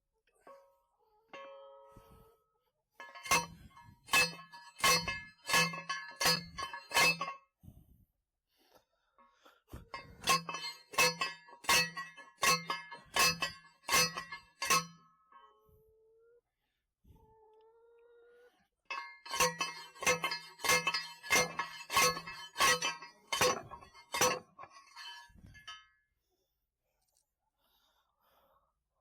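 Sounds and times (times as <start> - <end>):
metal post driver clanging: 3.0 - 7.4, 9.9 - 15.0, 18.9 - 25.8.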